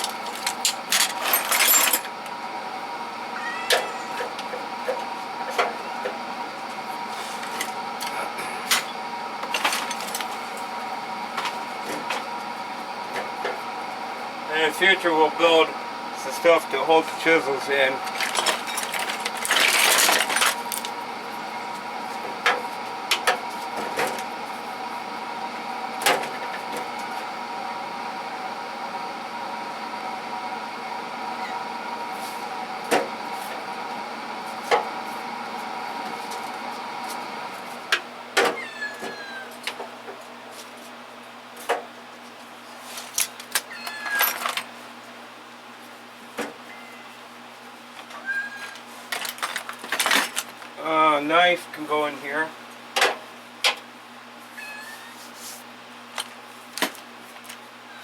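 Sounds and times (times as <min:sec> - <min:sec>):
tools clanking in metal drawers: 0:00.0 - 0:02.1, 0:18.0 - 0:20.9, 0:49.1 - 0:50.6
steady background hum: 0:00.0 - 0:58.0.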